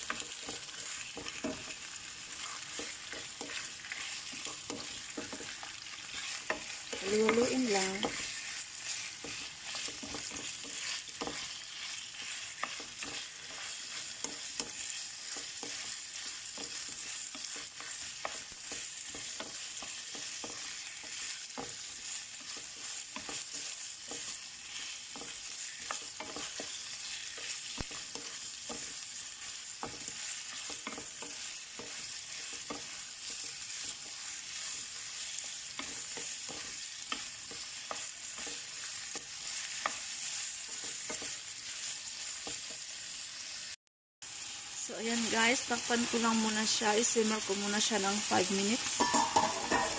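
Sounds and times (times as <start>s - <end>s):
utensil scraping a pan: 0.0s - 29.0s, 48.5s - 49.9s
chicken sizzling in oil: 0.0s - 49.9s.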